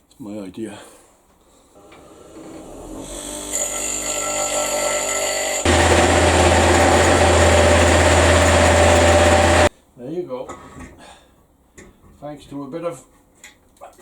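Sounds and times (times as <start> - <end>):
electric drill drilling steel: 5.4 - 9.7.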